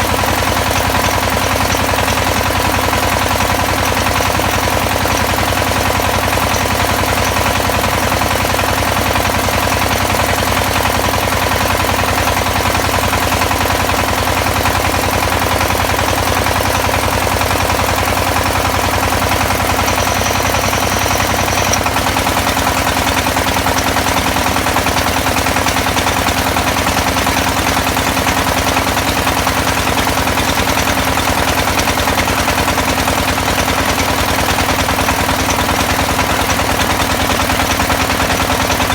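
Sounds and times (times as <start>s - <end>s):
drilling rig engine pulsing: 0.0s - 9.7s, 18.1s - 38.9s.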